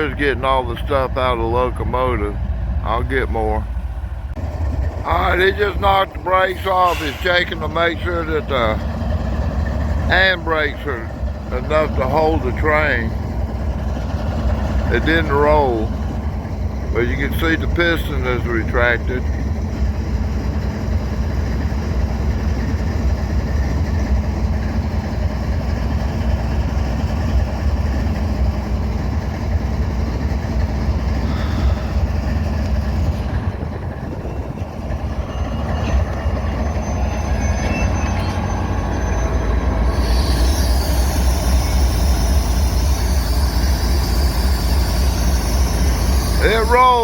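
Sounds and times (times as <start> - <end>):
diesel locomotive idling: 0.0 - 47.0
high brake squeal: 6.3 - 9.0, 34.0 - 47.0.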